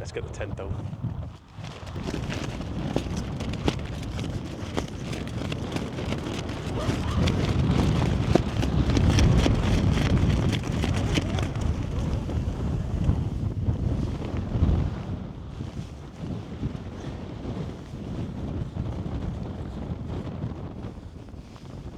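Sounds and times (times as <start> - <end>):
wind buffeting microphone: 0.0 - 21.9
small clicks and crackles: 1.1 - 13.2.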